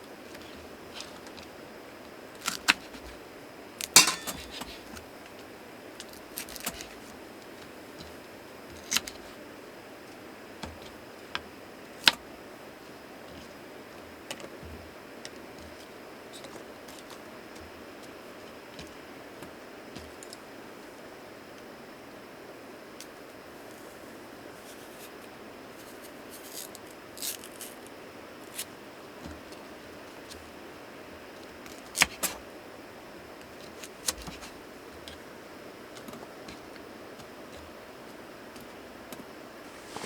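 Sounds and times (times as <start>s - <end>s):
small hard objects clinking: 4.0s - 4.7s.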